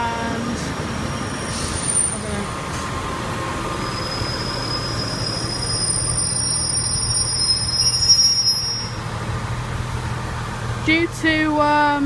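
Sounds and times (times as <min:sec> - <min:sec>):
diesel engine rumble: 0:00.0 - 0:12.0
train wheels squealing: 0:01.1 - 0:02.3, 0:03.7 - 0:09.0.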